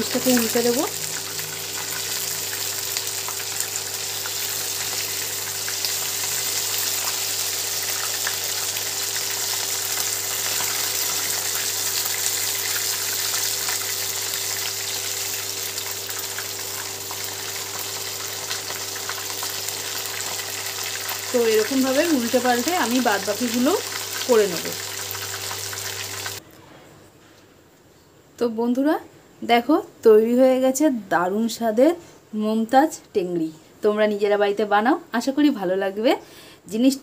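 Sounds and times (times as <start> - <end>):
meat sizzling in hot oil: 0.0 - 26.4.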